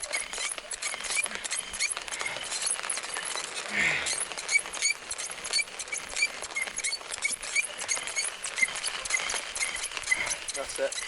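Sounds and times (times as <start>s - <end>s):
bow drill spindle squeaking: 4.5s - 11.0s.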